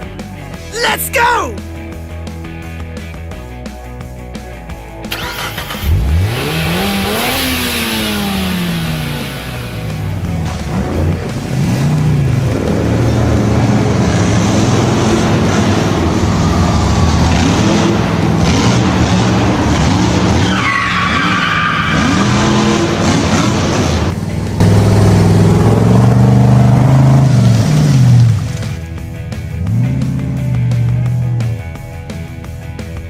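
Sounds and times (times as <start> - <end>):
racing engines revving: 5.1 - 28.8
tyres squealing and skidding: 15.4 - 24.1.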